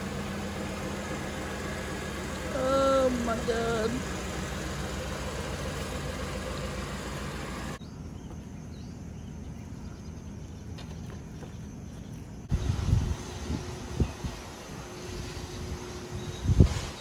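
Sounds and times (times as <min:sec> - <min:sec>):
car engine idling: 0:00.0 - 0:09.9
outdoor background: 0:00.0 - 0:17.0.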